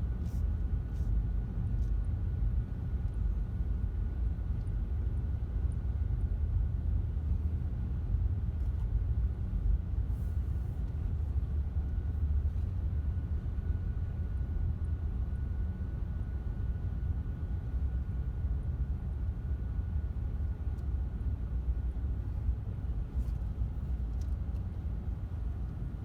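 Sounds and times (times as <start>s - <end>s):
faint high hum: 0.0s - 26.0s.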